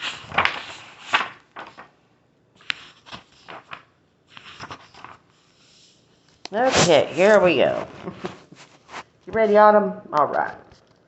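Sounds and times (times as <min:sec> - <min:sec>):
handling rustles and scrapes: 0:02.6 - 0:09.7.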